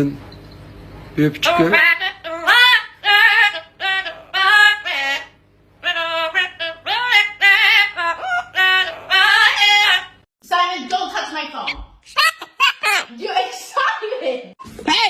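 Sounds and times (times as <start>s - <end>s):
parrot singing: 1.4s - 10.3s, 11.7s - 13.1s.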